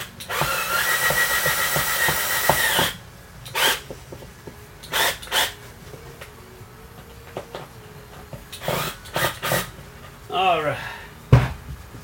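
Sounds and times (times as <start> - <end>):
power drill whining: 0.0 - 4.0, 4.8 - 5.7, 8.4 - 9.9.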